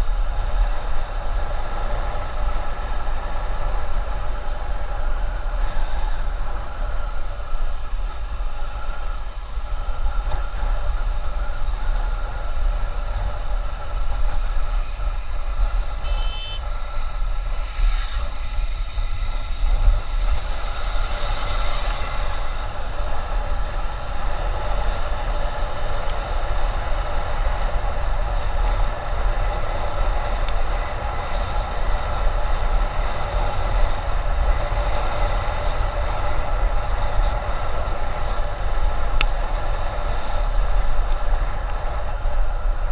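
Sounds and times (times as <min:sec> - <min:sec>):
motorbike engine drone: 0:00.0 - 0:42.9
wind rumbling on microphone: 0:00.0 - 0:42.9
short horn: 0:16.0 - 0:16.7.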